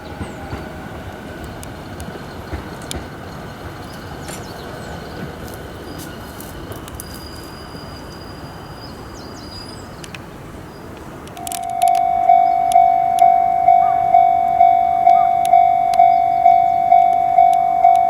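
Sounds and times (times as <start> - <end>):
outdoor rumble: 11.0 - 18.0
level-crossing warning bell: 11.3 - 18.0
thin high bird call: 11.4 - 18.0.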